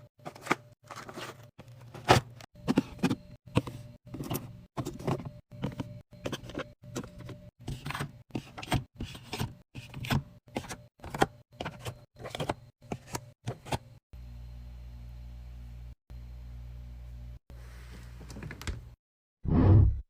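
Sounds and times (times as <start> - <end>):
steady low hum: 13.8 - 19.0.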